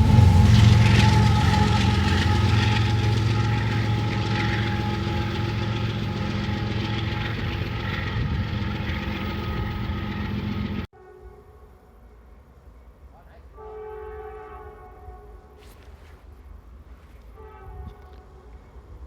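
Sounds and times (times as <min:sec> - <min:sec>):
diesel locomotive engines running: 0:00.0 - 0:10.9.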